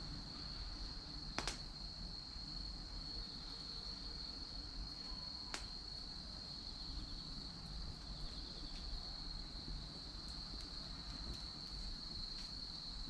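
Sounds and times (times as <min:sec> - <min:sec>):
insect trill: 0:00.0 - 0:13.0
firewood crackling pop: 0:01.3 - 0:01.9, 0:05.4 - 0:05.9, 0:10.2 - 0:12.6.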